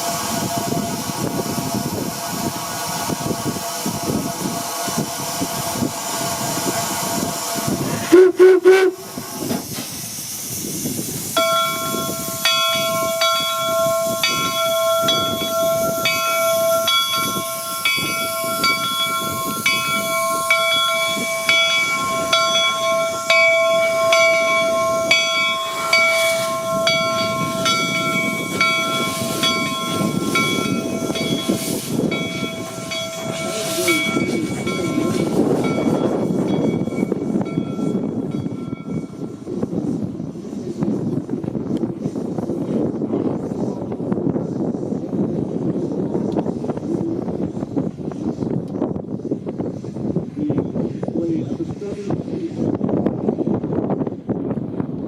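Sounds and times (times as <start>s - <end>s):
steam locomotive whistle: 0.0s - 9.5s.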